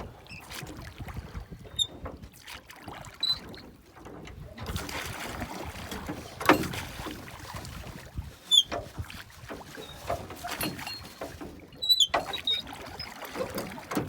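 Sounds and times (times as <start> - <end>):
water splashing around boat: 0.0 - 14.0
knocks on boat: 5.7 - 7.9, 13.4 - 14.0
short high squeaks: 9.8 - 11.2, 11.8 - 12.7.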